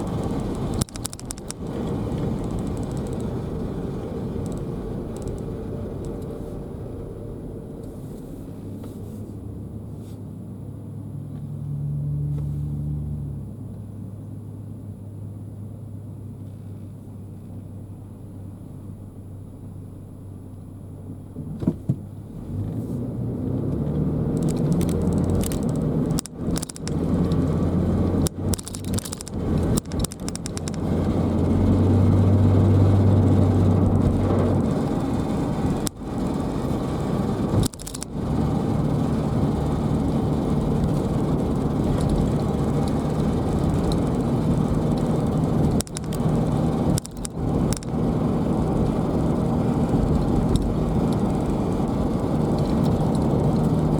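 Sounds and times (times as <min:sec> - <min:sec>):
rapid crackling rattle: 0:00.0 - 0:06.4, 0:24.3 - 0:53.9
car road and engine rumble: 0:00.0 - 0:53.9.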